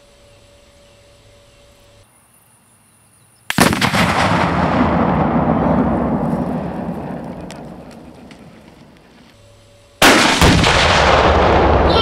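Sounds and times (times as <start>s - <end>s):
loud explosion blast: 3.5s - 8.2s, 10.0s - 12.0s
sharp cracks: 3.5s - 9.3s, 10.0s - 12.0s
rolling rumble: 3.7s - 9.4s.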